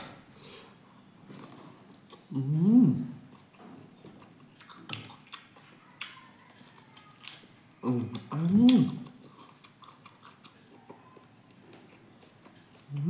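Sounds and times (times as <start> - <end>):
man humming: 2.3 - 3.2
wet chewing and lip smacks: 3.2 - 7.4, 8.1 - 13.0.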